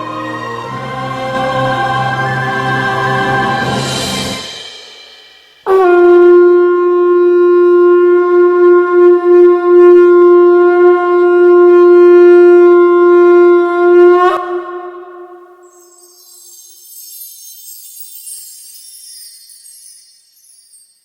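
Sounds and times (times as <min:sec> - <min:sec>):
long steady horn note: 0:05.6 - 0:16.2.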